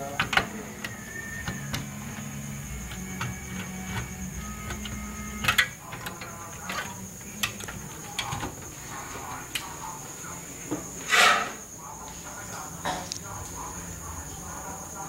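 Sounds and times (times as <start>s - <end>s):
scraping rustle: 11.0s - 11.6s.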